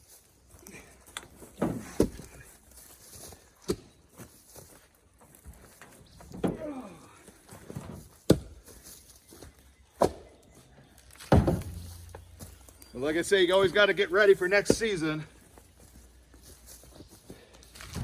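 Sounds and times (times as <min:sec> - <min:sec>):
wood clattering: 0:11.0 - 0:13.8
firewood blocks knocking on woodpile: 0:11.3 - 0:12.6.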